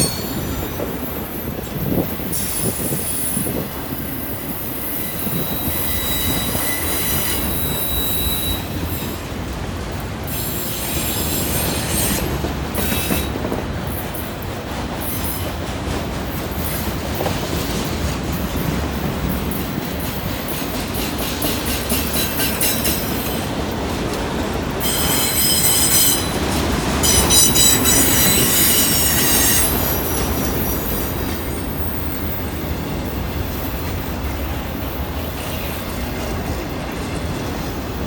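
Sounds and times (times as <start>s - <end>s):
high wheel squeal: 0.0s - 3.7s, 4.5s - 9.2s, 24.8s - 26.4s, 27.0s - 32.6s
train wheels rumbling and clattering: 0.0s - 38.0s.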